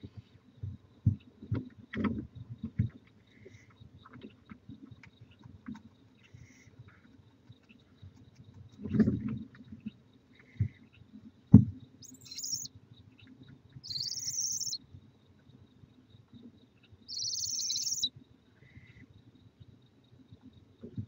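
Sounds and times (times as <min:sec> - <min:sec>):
owl screeching: 0:12.0 - 0:12.7, 0:13.9 - 0:14.8, 0:17.1 - 0:18.1.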